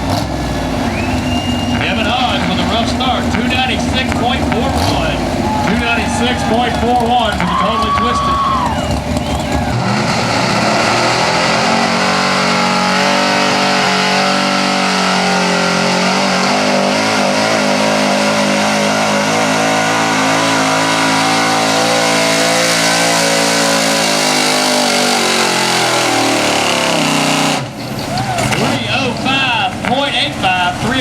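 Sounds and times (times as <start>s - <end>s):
truck engine at full throttle: 0.0s - 31.0s.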